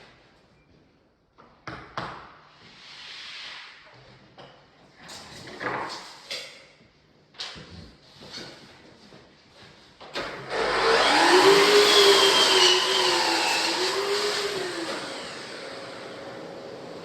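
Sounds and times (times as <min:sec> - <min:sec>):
electric power tool running: 0:10.5 - 0:17.0.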